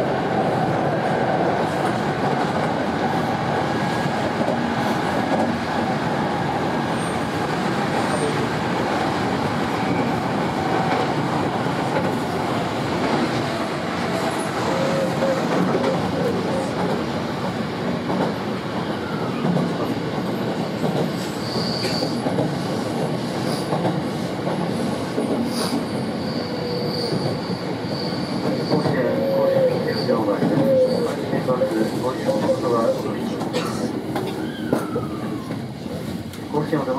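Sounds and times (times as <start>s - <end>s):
train wheels rumbling on rail: 0.0s - 36.9s
high wheel squeal: 14.4s - 15.5s, 21.2s - 22.2s, 25.6s - 31.2s.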